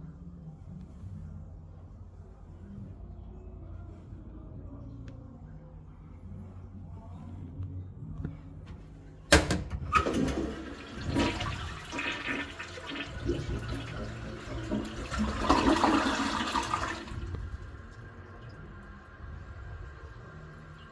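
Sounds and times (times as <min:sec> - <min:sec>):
toilet flush click: 0:09.3 - 0:17.2.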